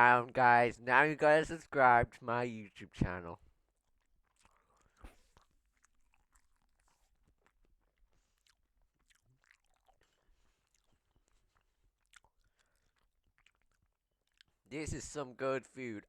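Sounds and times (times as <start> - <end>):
chewing noodles: 3.5 - 14.7.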